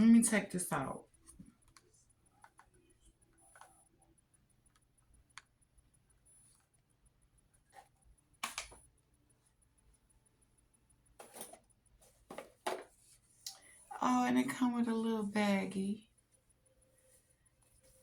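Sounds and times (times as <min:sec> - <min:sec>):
small clicks and taps: 0:07.7 - 0:09.0.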